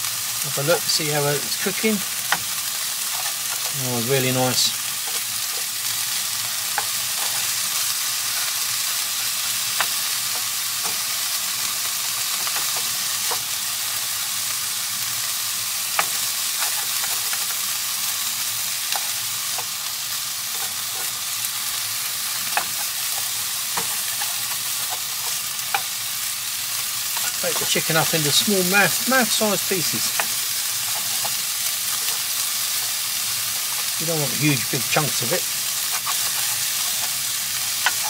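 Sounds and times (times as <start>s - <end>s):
chicken sizzling in a wok: 0.0s - 38.0s
spatula scraping and tapping pan: 5.0s - 5.7s, 6.7s - 7.6s, 22.4s - 25.9s, 35.8s - 37.2s, 37.8s - 38.0s.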